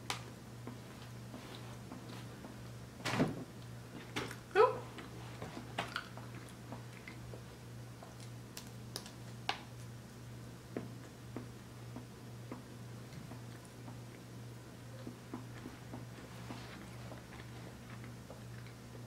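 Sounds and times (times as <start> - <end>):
steady low hum: 0.0 - 19.0
person chewing with mouth clicks: 5.9 - 7.4, 16.7 - 18.8.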